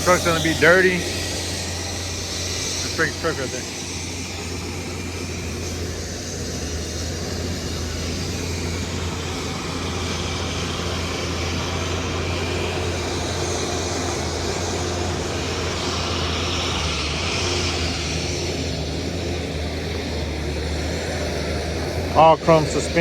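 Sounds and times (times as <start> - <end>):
engine rumbling: 0.0 - 23.0.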